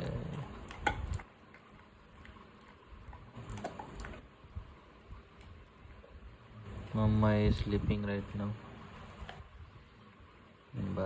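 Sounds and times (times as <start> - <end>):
dog chewing on a bone: 0.0 - 11.0.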